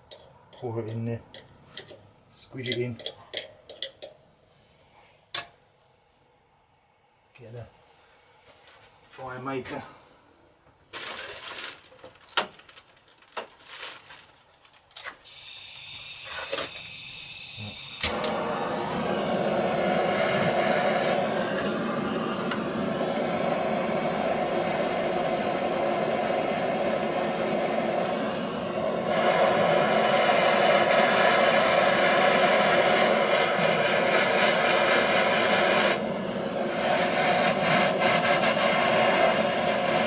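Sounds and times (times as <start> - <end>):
blowtorch flame burning: 15.2 - 40.0
gas hissing: 15.2 - 40.0
blowtorch ignition click: 15.3 - 40.0.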